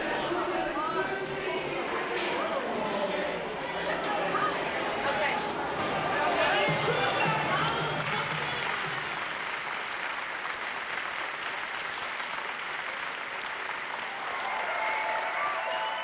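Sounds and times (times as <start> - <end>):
audience applauding: 7.2 - 16.0
crowd shouts and whoops: 14.1 - 16.0.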